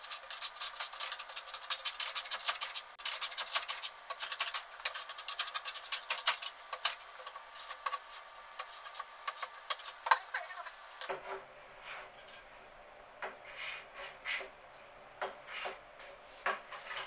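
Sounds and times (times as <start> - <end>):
hand tool scraping wood: 0.0 - 10.2.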